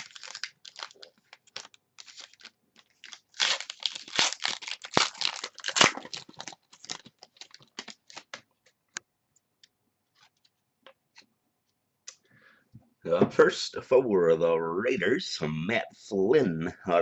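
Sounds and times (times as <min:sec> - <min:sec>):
card pack wrapper crinkling: 0:00.0 - 0:08.4.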